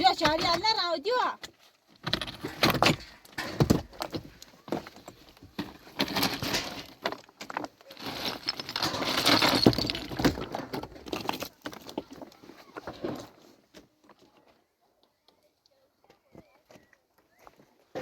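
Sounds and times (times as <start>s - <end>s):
hard objects knocking and scraping: 2.0s - 13.4s.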